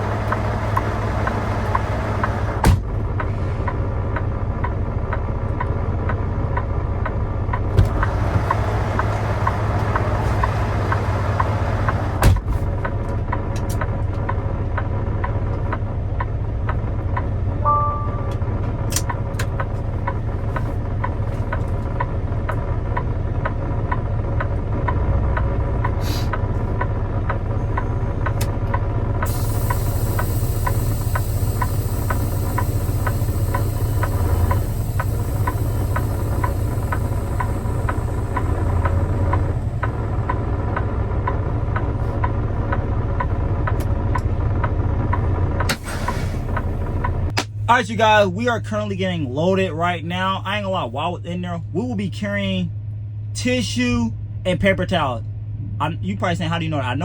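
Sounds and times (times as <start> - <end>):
truck engine rumble: 0.0 - 57.0
short beep: 17.6 - 18.6.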